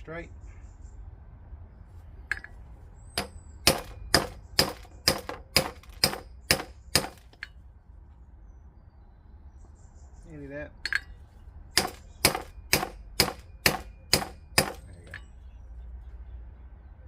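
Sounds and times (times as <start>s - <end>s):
metallic strikes on a socket: 10.8s - 11.2s.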